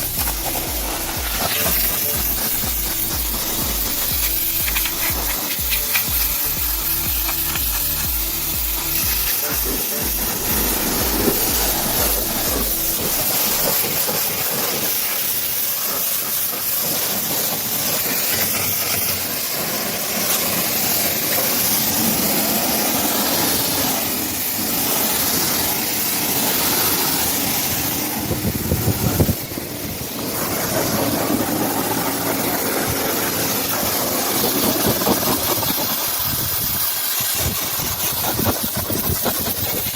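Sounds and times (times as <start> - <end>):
rhythmic music beat: 0.0 - 14.1
pressure washer spray hissing: 0.0 - 39.9
low rumble: 10.1 - 13.6.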